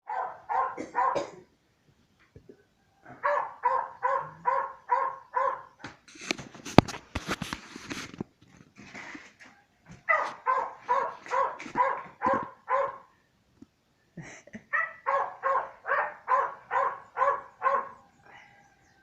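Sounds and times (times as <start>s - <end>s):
dog barking: 0.0s - 1.4s, 3.1s - 5.8s, 10.0s - 13.1s, 14.7s - 18.0s
rustling and clicking: 5.8s - 12.6s.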